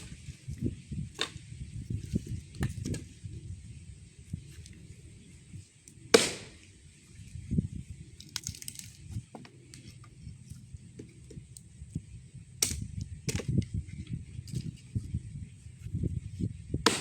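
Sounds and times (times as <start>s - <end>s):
axe chopping firewood: 1.1s - 1.4s, 6.1s - 6.7s, 16.8s - 17.0s
wood cracking: 8.2s - 9.0s
wood being handled: 8.2s - 11.6s.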